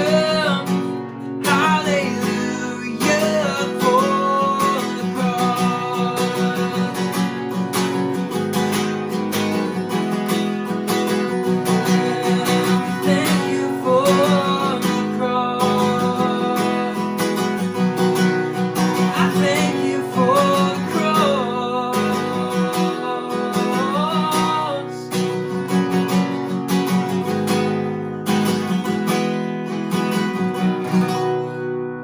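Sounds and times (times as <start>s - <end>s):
strummed acoustic guitar: 0.0s - 32.0s.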